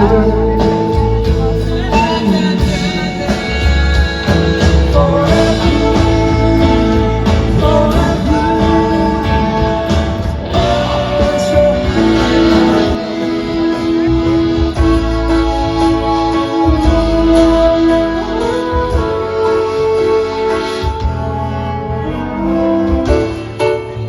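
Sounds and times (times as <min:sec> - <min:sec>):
held vocal harmonies: 0:00.0 - 0:14.9
guitar playing: 0:00.0 - 0:24.0
live rock band: 0:00.0 - 0:24.0.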